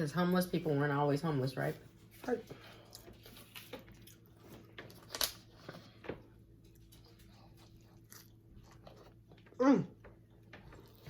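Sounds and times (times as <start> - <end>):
wet chewing: 2.8 - 11.0.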